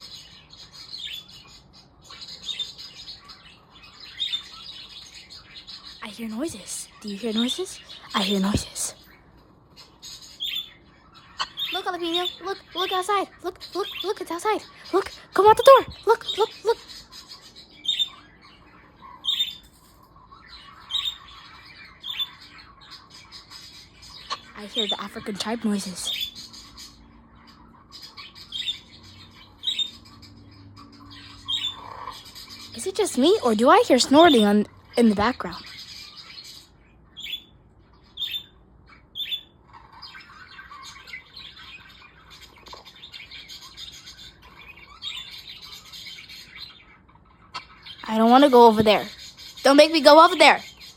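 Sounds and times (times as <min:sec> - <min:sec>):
soft bird chirping: 0:00.0 - 0:50.9
budgerigars squawking: 0:09.8 - 0:19.6, 0:20.4 - 0:37.5, 0:38.1 - 0:50.9.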